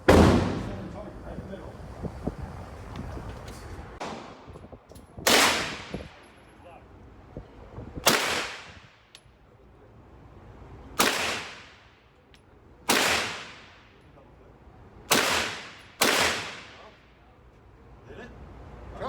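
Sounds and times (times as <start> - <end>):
gunshots echoing: 0.0 - 0.9, 5.3 - 6.2, 8.1 - 8.8, 11.0 - 11.8, 12.9 - 13.8, 15.1 - 16.9.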